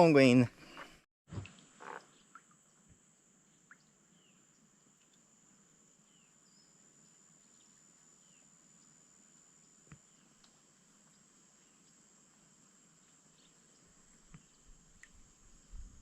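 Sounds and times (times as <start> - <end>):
small tick: 5.0 - 5.2, 9.9 - 11.2
insect trill: 5.4 - 10.2.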